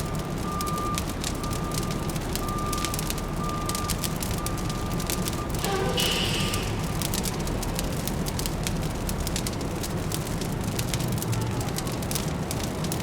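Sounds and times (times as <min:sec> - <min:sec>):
fireplace crackling and popping: 0:00.0 - 0:13.0
distant city traffic hum: 0:03.1 - 0:13.0.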